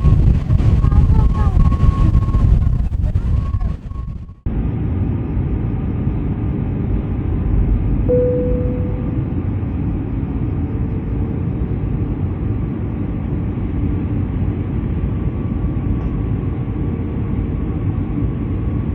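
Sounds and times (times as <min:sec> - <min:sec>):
wind blowing over microphone: 0:00.0 - 0:04.4
faint steady whine: 0:08.1 - 0:14.1.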